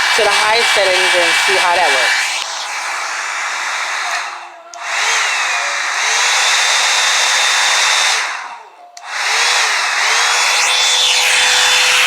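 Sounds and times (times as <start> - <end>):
hair dryer blowing air: 0.0 - 12.0.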